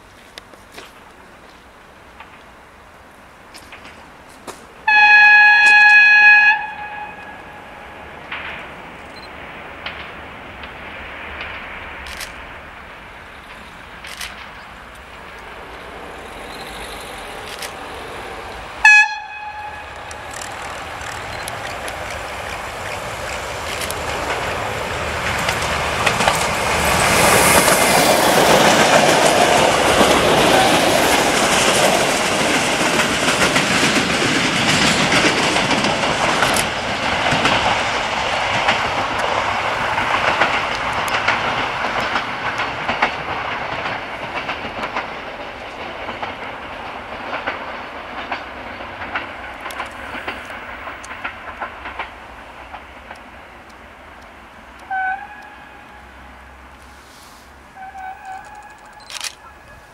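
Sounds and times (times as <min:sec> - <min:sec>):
train horn blast: 0:04.8 - 0:08.1, 0:18.8 - 0:20.2, 0:54.8 - 0:56.1, 0:57.7 - 0:58.7
train wheels clicking over rail joints: 0:08.2 - 0:59.9.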